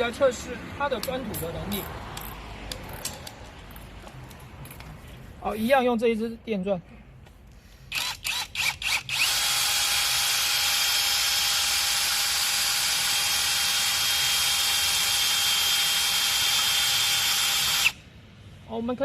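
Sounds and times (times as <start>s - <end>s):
electric drill whining: 7.9s - 18.0s.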